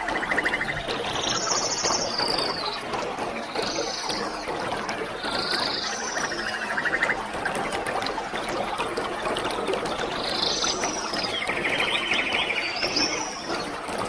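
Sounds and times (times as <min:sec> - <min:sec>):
bird singing: 0:00.0 - 0:02.8, 0:03.5 - 0:07.2, 0:10.1 - 0:13.8.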